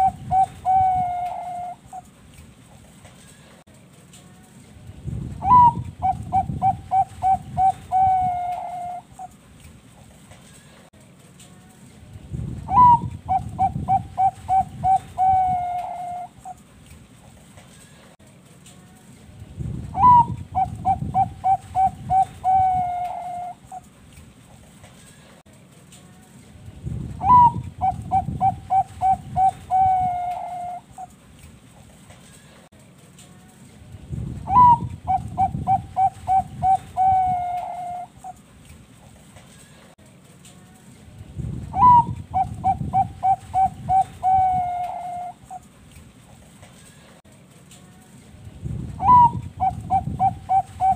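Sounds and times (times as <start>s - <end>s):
dove cooing: 0.0s - 2.1s, 5.4s - 9.4s, 12.7s - 16.6s, 20.0s - 23.9s, 27.2s - 31.1s, 34.5s - 38.4s, 41.7s - 45.7s, 49.0s - 50.9s.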